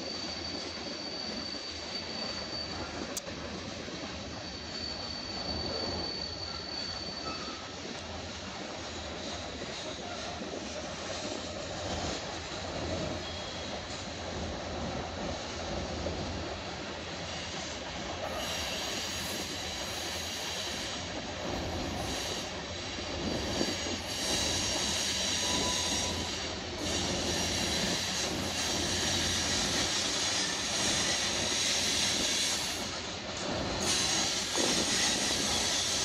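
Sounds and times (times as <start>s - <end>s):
freight train wheels on rails: 0.0s - 36.0s
wheel flanges squealing: 4.3s - 7.8s, 23.2s - 32.9s.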